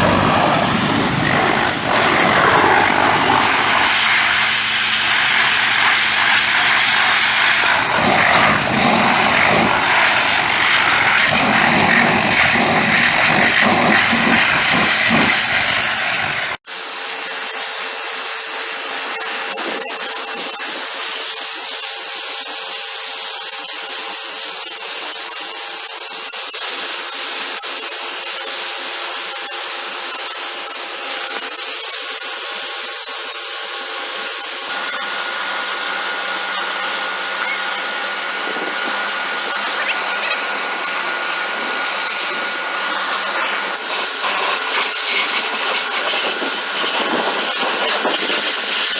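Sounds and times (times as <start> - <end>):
pressure washer spraying: 0.0 - 16.5, 37.8 - 48.9
deep rough noise: 0.0 - 16.6.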